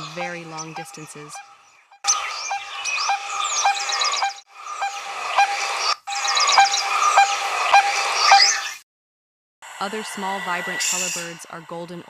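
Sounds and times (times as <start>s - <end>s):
small birds chirping and trilling: 0.0s - 8.8s.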